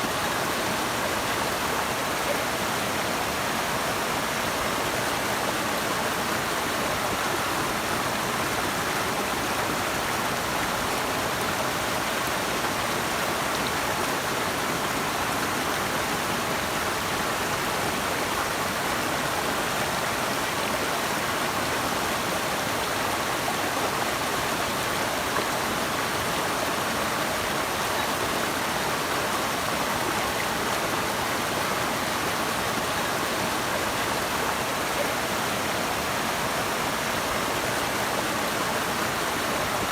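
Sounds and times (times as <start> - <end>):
rushing flowing water: 0.0 - 39.9.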